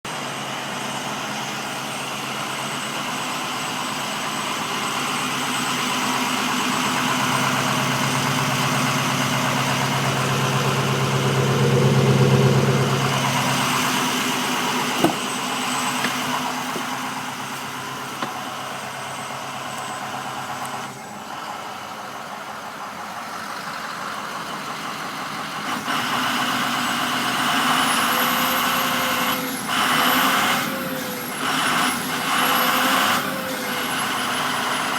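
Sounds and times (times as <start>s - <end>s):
diesel engine idling: 0.1s - 34.9s
turbocharger whistle: 4.9s - 16.1s.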